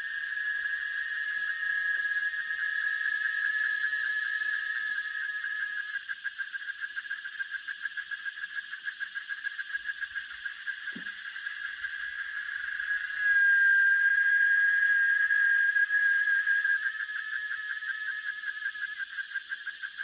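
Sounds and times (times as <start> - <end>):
soft thump: 10.9 - 11.1.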